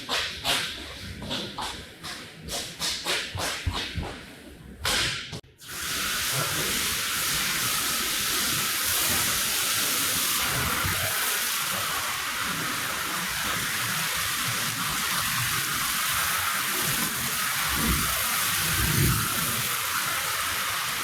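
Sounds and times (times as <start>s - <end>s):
water spraying onto rug: 5.6s - 21.0s.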